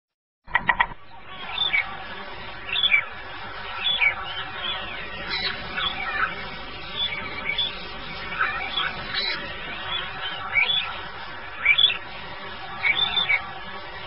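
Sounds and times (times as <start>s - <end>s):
sharp clicks: 0.5s - 1.0s
bird chirps sliding downward: 0.5s - 2.0s, 12.8s - 13.6s.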